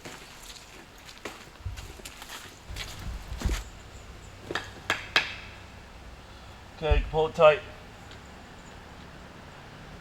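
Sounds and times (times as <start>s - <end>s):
footsteps on ground: 0.0s - 4.9s.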